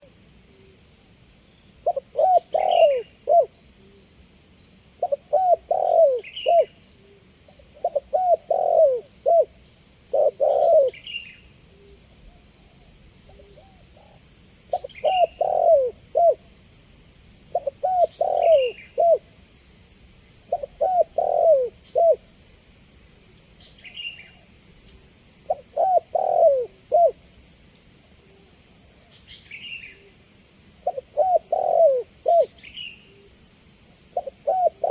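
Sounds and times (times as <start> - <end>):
steady high hiss: 0.0 - 34.9
dove cooing: 1.8 - 3.5, 5.0 - 11.2, 13.3 - 16.5, 17.5 - 19.3, 20.5 - 22.3, 25.5 - 27.2, 30.8 - 33.3, 34.2 - 34.9.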